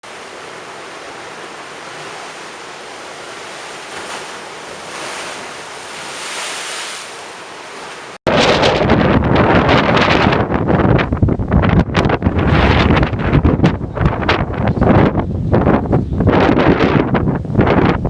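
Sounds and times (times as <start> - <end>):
storm waves breaking: 0.0 - 15.0
wind buffeting microphone: 8.3 - 18.0.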